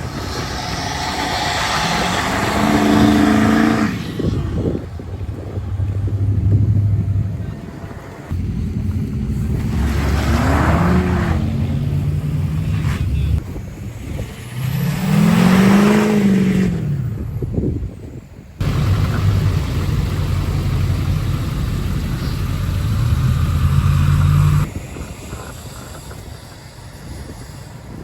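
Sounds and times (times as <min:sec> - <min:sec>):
truck engine revving: 0:00.0 - 0:07.4, 0:08.3 - 0:13.4, 0:14.2 - 0:17.2, 0:18.6 - 0:24.7.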